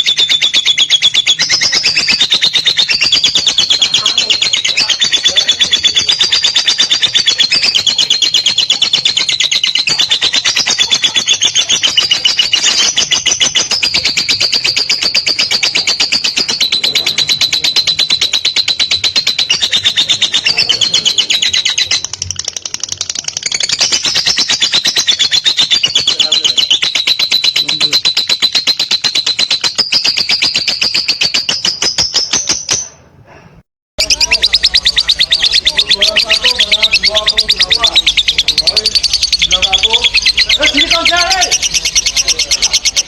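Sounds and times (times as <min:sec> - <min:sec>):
lovebird chattering trill: 0:00.0 - 0:33.0, 0:34.0 - 0:43.0.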